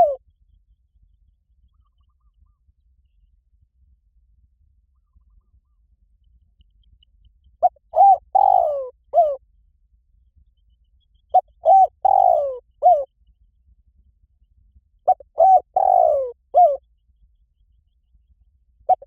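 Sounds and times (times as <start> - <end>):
dove cooing: 0.0 - 0.2, 7.6 - 9.4, 11.4 - 13.1, 15.1 - 16.8.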